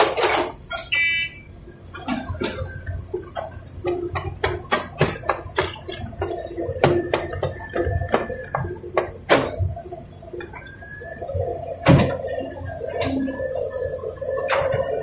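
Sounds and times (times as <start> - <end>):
metallic knocks and clanks: 2.0 - 7.6.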